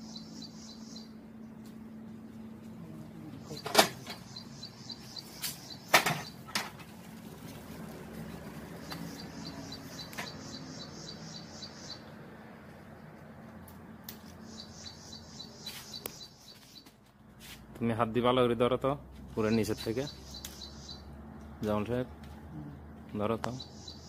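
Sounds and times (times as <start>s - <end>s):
small bird chirping: 0.0s - 1.5s, 3.3s - 6.5s, 8.7s - 12.2s, 14.2s - 17.0s, 19.5s - 21.2s, 23.5s - 24.0s.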